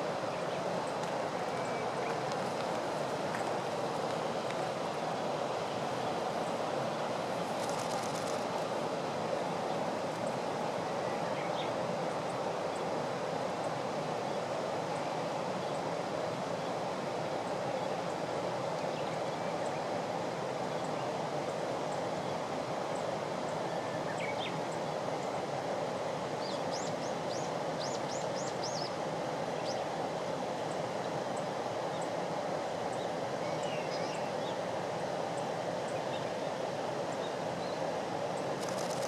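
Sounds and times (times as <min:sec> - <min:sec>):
steady rushing noise: 0:00.0 - 0:11.0, 0:36.6 - 0:39.0.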